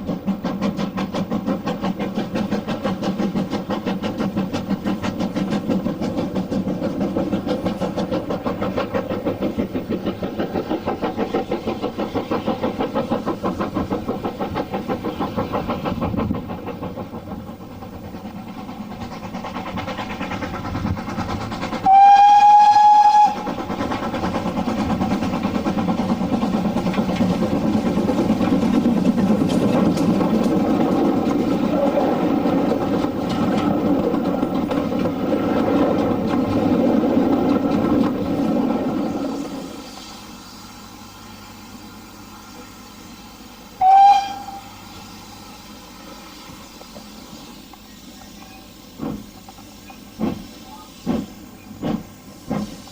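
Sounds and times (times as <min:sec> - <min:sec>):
train rumbling on the line: 0:00.0 - 0:52.9
train whistle: 0:21.8 - 0:23.6, 0:43.8 - 0:45.6.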